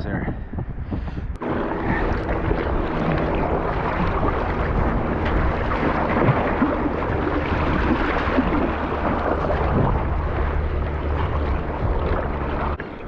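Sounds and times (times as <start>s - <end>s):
wind buffeting microphone: 0.0s - 13.0s
sea water sloshing: 1.4s - 13.0s.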